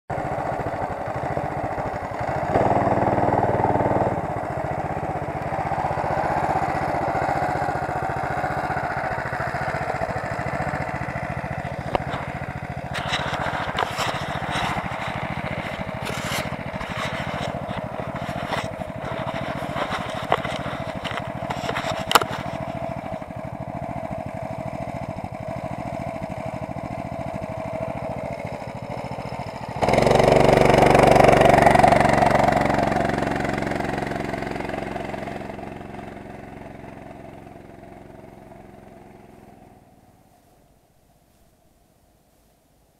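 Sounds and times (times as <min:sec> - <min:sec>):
motorcycle engine running: 0:00.1 - 0:40.3
sharp clicks and knocks: 0:11.6 - 0:23.2.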